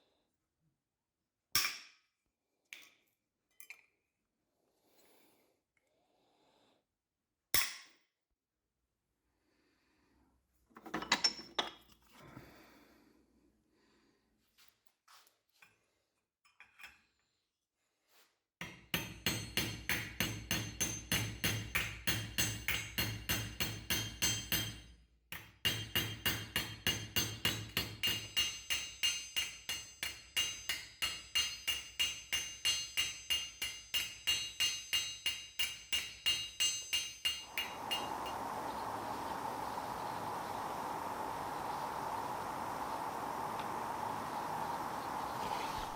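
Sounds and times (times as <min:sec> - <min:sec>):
hammer striking iron: 0:18.6 - 0:24.8, 0:25.4 - 0:38.3
steady hiss: 0:37.0 - 0:45.9.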